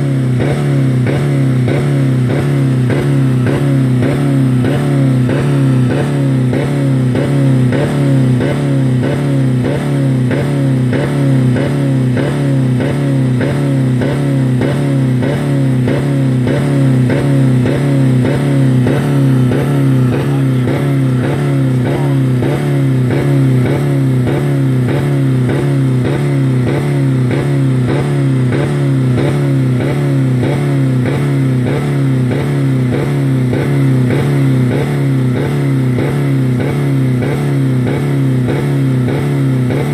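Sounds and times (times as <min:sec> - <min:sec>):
engine bouncing off rev limiter: 0:00.0 - 0:39.9.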